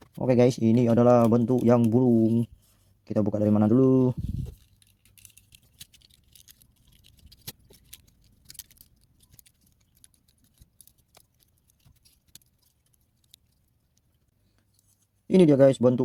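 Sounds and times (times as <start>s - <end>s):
plastic toy parts clicking: 4.0s - 14.2s.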